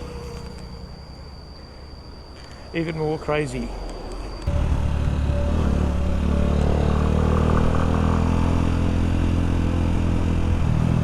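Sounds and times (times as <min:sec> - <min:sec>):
small motorcycle engine running: 0:04.5 - 0:11.0.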